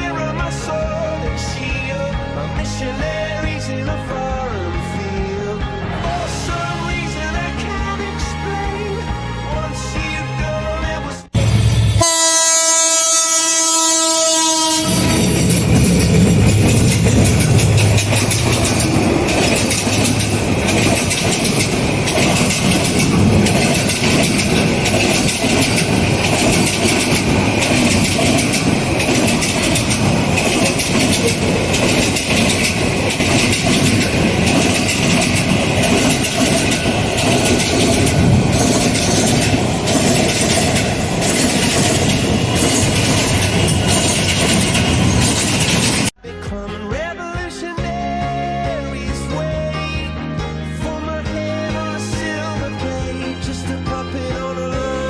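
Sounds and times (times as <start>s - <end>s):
train wheels clattering on rails: 14.8s - 46.2s.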